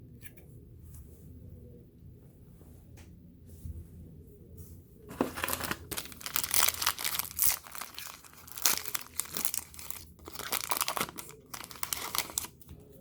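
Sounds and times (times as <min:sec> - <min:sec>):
foil wrapper tearing and crinkling: 0:05.1 - 0:12.6.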